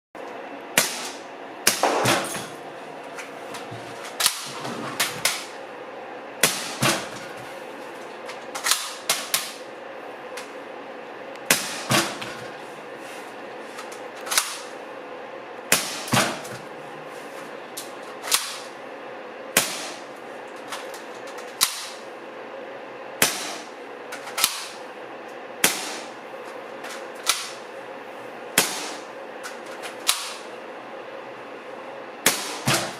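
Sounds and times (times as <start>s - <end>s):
steady background hum: 0.2s - 32.9s
airsoft pistol shots: 0.8s - 2.3s, 6.4s - 7.0s, 11.5s - 12.2s, 15.7s - 16.4s, 18.3s - 18.7s, 19.6s - 20.0s, 21.6s - 22.0s, 23.2s - 23.7s, 24.4s - 24.8s, 25.6s - 26.1s, 28.6s - 29.1s, 30.0s - 30.4s, 32.2s - 32.9s.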